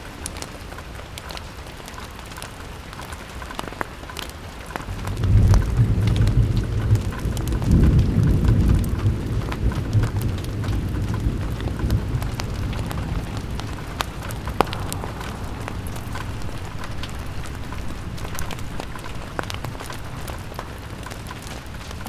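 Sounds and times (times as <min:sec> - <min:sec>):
steady rain: 0:00.0 - 0:22.0
sharp ticks and crackles: 0:00.1 - 0:22.0
low rumble of thunder: 0:04.8 - 0:22.0.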